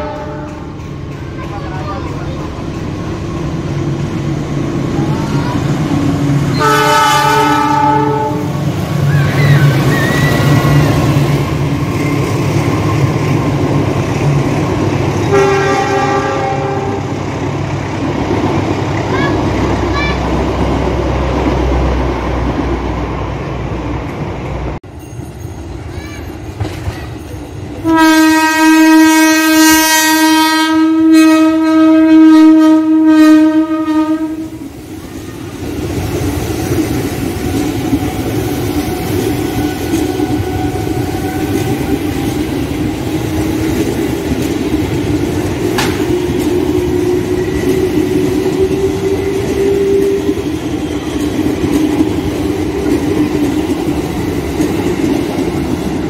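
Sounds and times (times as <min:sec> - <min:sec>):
train horn blast: 0:00.0 - 0:00.8, 0:06.5 - 0:08.6, 0:15.2 - 0:17.2, 0:27.8 - 0:34.7
electric train rumbling: 0:00.0 - 0:56.0
passenger coaches rolling past: 0:00.0 - 0:56.0.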